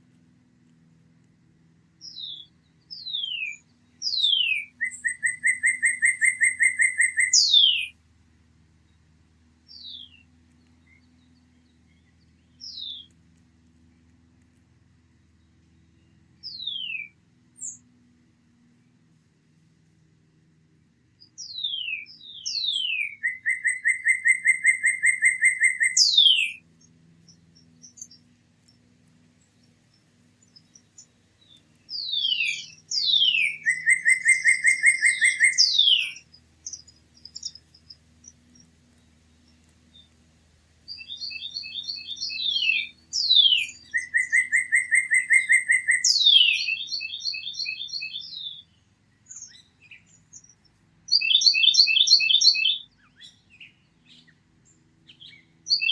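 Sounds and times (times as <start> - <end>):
bird chips: 2.0 - 7.9, 21.4 - 26.6, 27.2 - 40.3, 40.9 - 48.4
songbird singing with trill: 2.0 - 8.0, 9.7 - 14.1, 15.3 - 18.0, 21.2 - 40.2, 40.8 - 55.9.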